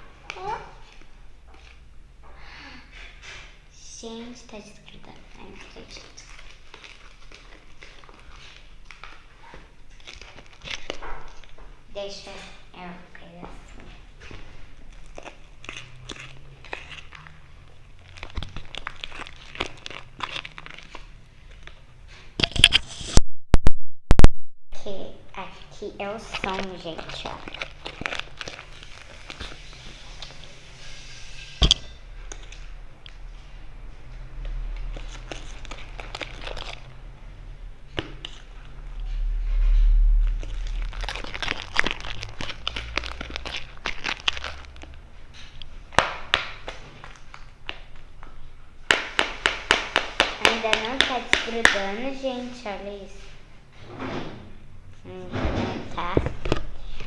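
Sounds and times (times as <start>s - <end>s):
slime squished and stretched: 4.9s - 11.6s, 13.9s - 23.2s, 25.8s - 33.3s, 34.3s - 53.0s
low rumble: 36.8s - 45.2s
slime sticky crackles and pops: 40.4s - 45.0s.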